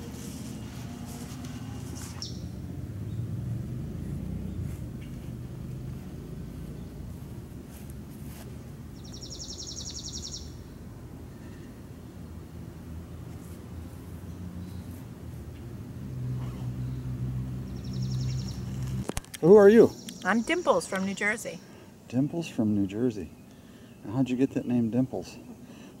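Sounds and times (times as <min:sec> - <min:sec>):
low outdoor rumble: 0:00.0 - 0:09.5, 0:10.4 - 0:23.4
falling bird chirp: 0:01.4 - 0:03.2, 0:09.0 - 0:10.8, 0:17.7 - 0:21.7
songbird trilling: 0:02.1 - 0:03.2, 0:09.0 - 0:10.8, 0:17.7 - 0:18.8, 0:19.4 - 0:21.7.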